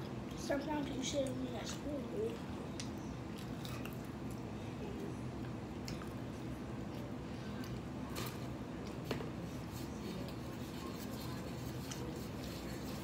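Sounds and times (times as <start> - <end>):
low room hum: 0.0 - 13.0
chewing fries: 1.2 - 13.0.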